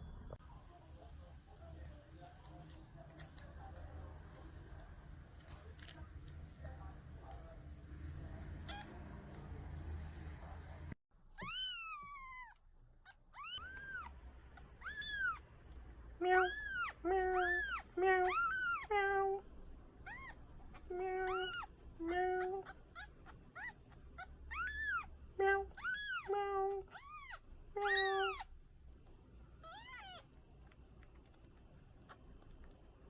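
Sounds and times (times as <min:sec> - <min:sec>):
kitten mewing: 0:08.6 - 0:09.1, 0:11.4 - 0:15.4, 0:16.2 - 0:19.4, 0:20.0 - 0:28.5, 0:29.6 - 0:30.3.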